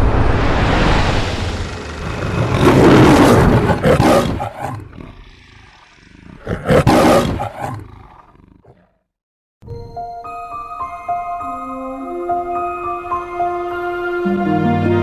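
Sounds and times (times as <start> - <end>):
lion roaring: 1.4 - 9.0.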